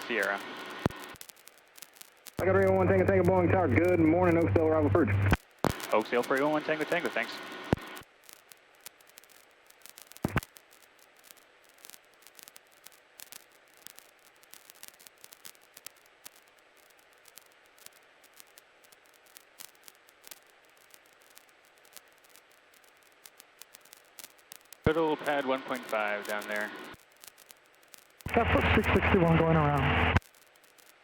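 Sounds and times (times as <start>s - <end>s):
radio crackling clicks: 0.0s - 31.0s
intercom hiss: 2.4s - 8.0s, 24.9s - 27.0s, 28.3s - 30.2s.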